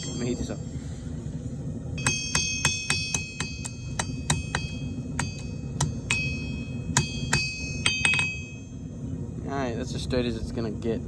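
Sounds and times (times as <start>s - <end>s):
hammer ringing on anvil: 0.0s - 0.7s, 2.0s - 8.8s.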